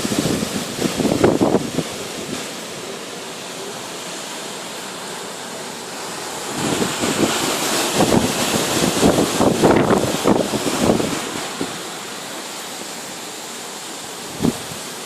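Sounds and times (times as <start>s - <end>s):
storm wind buffeting microphone: 0.0s - 2.9s, 6.0s - 12.1s, 14.2s - 14.9s.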